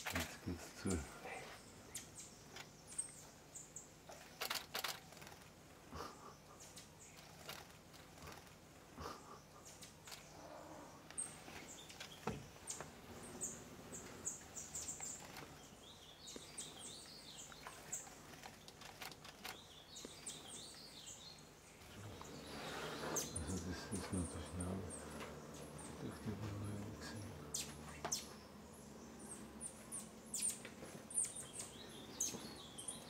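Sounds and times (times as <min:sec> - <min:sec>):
small birds chirping: 0:00.0 - 0:33.0
bird warbling calls: 0:19.4 - 0:33.0.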